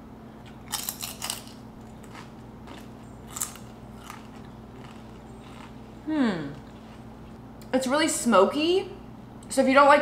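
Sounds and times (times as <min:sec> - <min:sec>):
crunching tortilla chip: 0:00.6 - 0:05.8.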